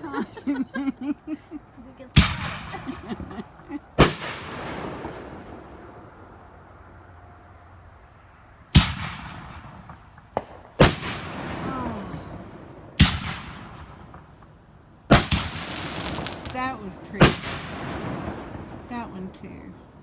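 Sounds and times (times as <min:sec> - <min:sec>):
firework crack: 0:02.2 - 0:06.9, 0:08.7 - 0:20.0
fireworks booming: 0:02.2 - 0:06.9, 0:08.7 - 0:14.5, 0:15.1 - 0:20.0.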